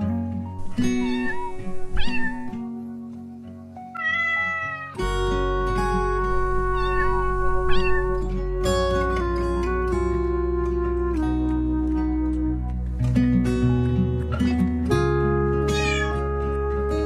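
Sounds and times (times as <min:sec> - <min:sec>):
soft instrumental music: 0:00.0 - 0:17.0
cat meowing: 0:00.7 - 0:02.6, 0:04.0 - 0:05.1, 0:06.3 - 0:08.2, 0:15.7 - 0:16.3.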